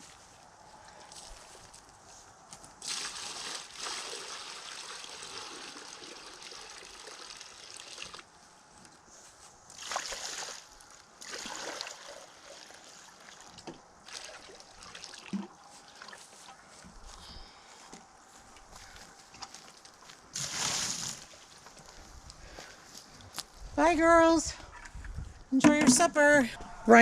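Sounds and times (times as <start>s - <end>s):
water pouring into container: 2.8s - 8.3s
water splashes: 2.8s - 8.3s, 9.8s - 16.4s, 20.3s - 21.5s.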